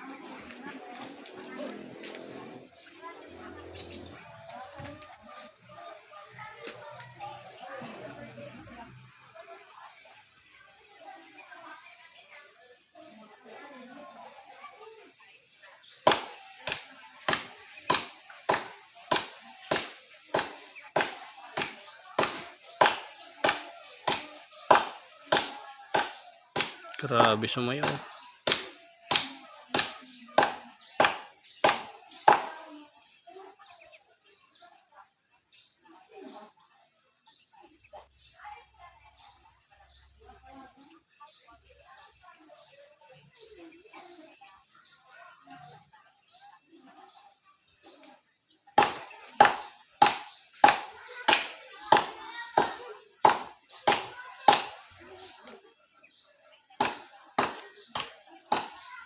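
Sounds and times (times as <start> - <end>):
blade chopping palm trunk: 16.1 - 32.6, 48.8 - 54.8, 56.8 - 58.8.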